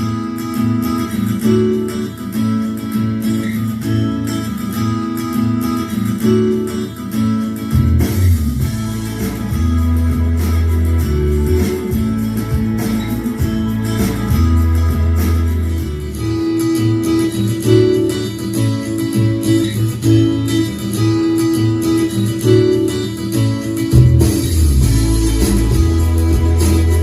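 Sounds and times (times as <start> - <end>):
plucked guitar: 0.0 - 27.0
song on portable speaker: 0.0 - 27.0
heavy bass line: 7.7 - 17.9, 23.9 - 27.0.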